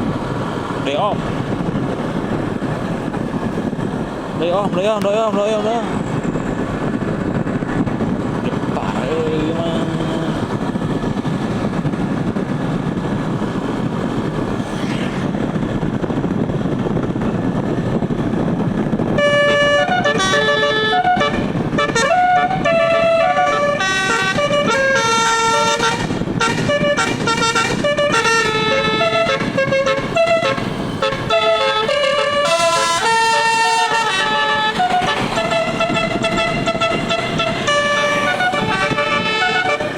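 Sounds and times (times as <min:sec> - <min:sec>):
steady low rumble: 0:00.0 - 0:39.9
musical air horn melody: 0:19.1 - 0:39.9.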